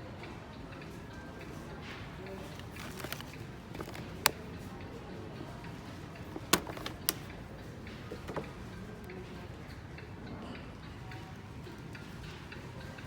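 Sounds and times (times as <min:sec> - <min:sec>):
steady background noise: 0:00.0 - 0:13.0
sharp clicks or knocks: 0:02.6 - 0:04.4, 0:06.3 - 0:07.3.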